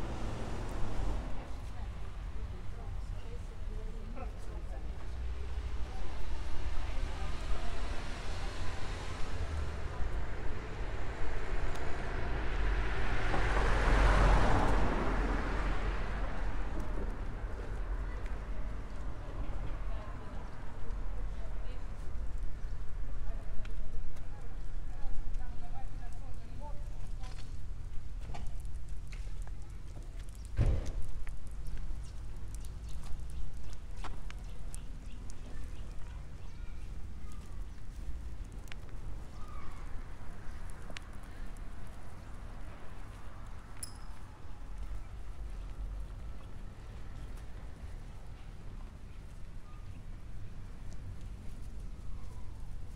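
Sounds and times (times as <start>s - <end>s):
car passing by: 0.0s - 1.9s, 6.4s - 17.8s.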